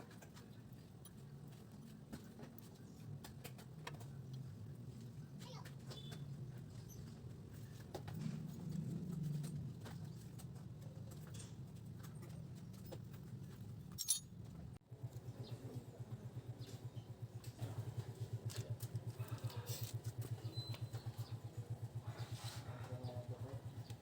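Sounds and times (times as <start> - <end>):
scooter engine idling: 14.9 - 24.0.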